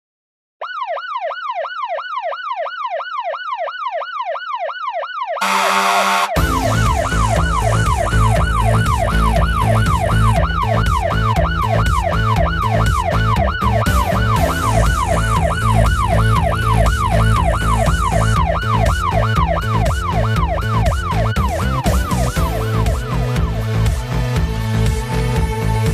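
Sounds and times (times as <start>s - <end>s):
emergency vehicle siren wailing: 0.6s - 24.0s
music with steady bass beat: 5.4s - 25.9s.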